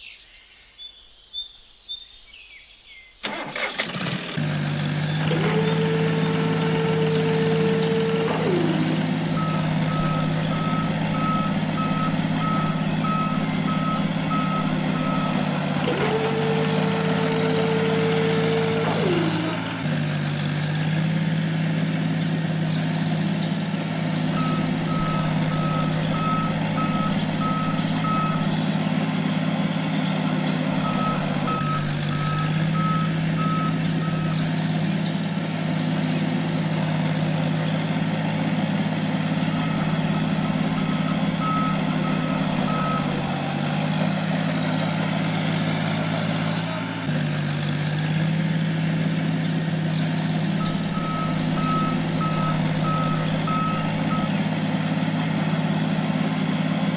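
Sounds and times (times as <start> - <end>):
small vehicle motor humming: 3.2 - 56.9
reversing alarm beeping: 5.3 - 19.7, 24.1 - 29.5, 30.3 - 34.6, 39.3 - 44.1, 50.5 - 54.4.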